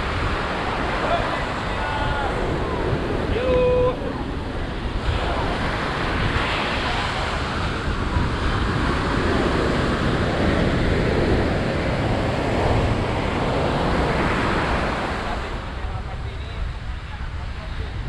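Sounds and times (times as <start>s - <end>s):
ocean surf washing ashore: 0.0s - 18.0s
wind buffeting microphone: 0.0s - 18.0s.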